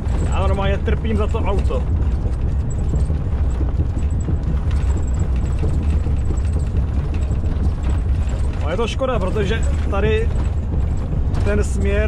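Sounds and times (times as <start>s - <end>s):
knocks and rattles: 0.0s - 12.0s
truck rumble on rough concrete: 0.0s - 12.0s.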